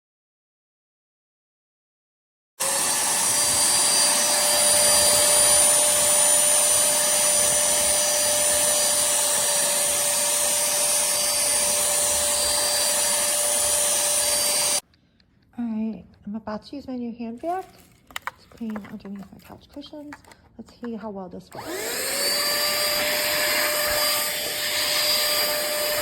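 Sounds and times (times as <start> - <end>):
handheld vacuum cleaner running: 2.6 - 14.8, 17.6 - 19.5, 20.1 - 20.4, 21.5 - 26.0.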